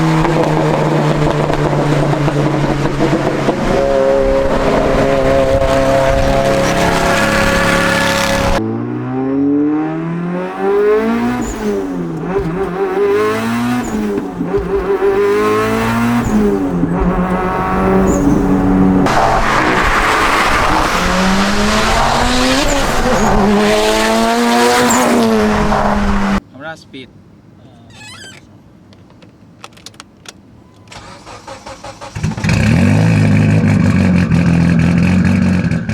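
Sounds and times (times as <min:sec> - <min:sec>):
car engine revving through gears: 0:00.0 - 0:26.4, 0:31.0 - 0:35.9
starter cranking engine: 0:30.9 - 0:32.6.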